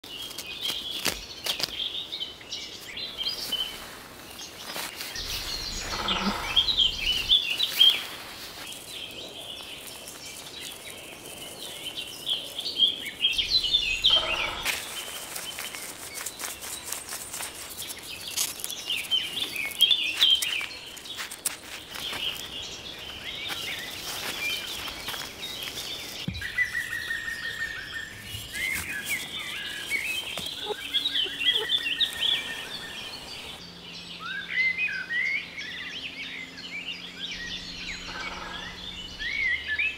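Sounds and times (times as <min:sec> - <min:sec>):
birds chirping and singing: 0:00.3 - 0:39.9
loud bird calls: 0:01.5 - 0:17.1, 0:21.9 - 0:33.6, 0:35.8 - 0:39.9
soft crackles: 0:02.8 - 0:33.6
bird trill: 0:05.2 - 0:08.1, 0:13.2 - 0:15.7, 0:26.4 - 0:33.6, 0:37.3 - 0:39.9.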